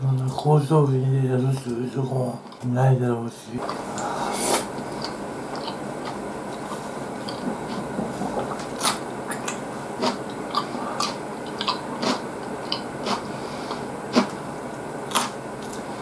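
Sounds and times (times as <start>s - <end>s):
person chewing food: 3.6s - 14.4s, 15.0s - 16.0s.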